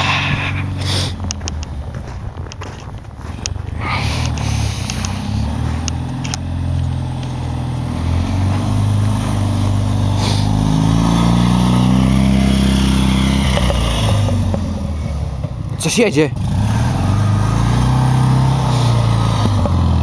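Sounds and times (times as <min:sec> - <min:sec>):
small car engine revving past: 0:03.9 - 0:15.3, 0:16.4 - 0:20.0.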